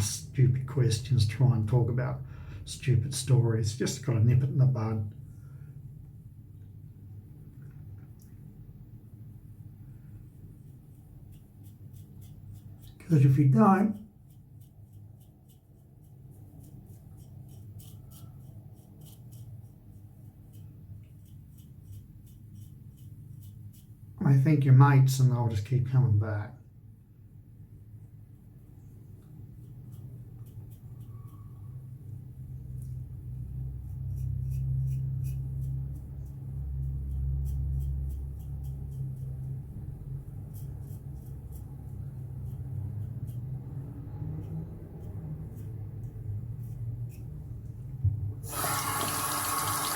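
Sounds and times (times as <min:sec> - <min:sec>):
low steady hum: 0:00.0 - 0:49.9
razor scraping through stubble: 0:10.6 - 0:24.1, 0:33.8 - 0:39.6.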